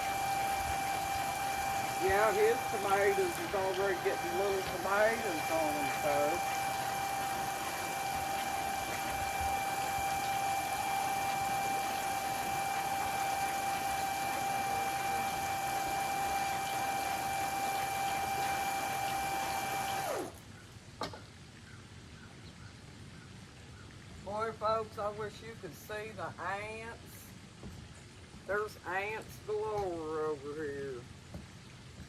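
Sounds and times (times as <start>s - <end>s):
electric water pump whining: 0.0s - 21.2s, 26.9s - 32.0s
rushing water: 0.0s - 22.2s.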